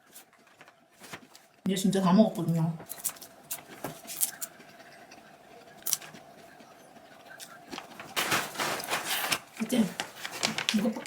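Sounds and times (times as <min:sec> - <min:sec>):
snack packaging crinkling: 0:02.9 - 0:11.0.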